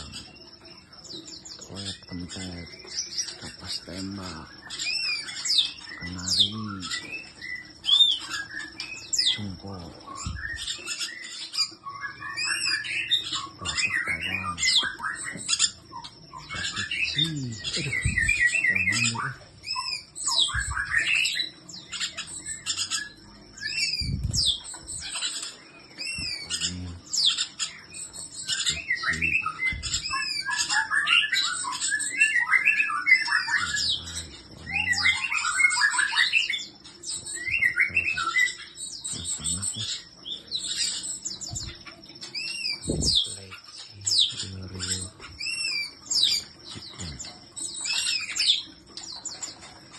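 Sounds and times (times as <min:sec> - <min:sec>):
sharp bird chip calls: 0:00.0 - 0:49.9
songbirds chirping and singing: 0:00.0 - 0:49.9
low thumps: 0:29.7 - 0:30.1.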